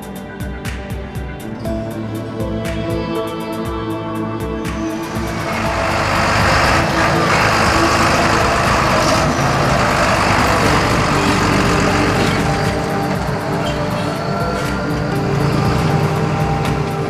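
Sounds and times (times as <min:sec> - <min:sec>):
diesel farm machinery running: 0:04.9 - 0:17.0.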